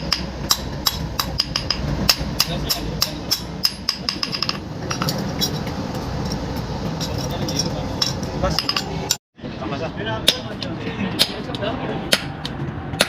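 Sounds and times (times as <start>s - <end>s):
low rumble: 0.0s - 9.2s.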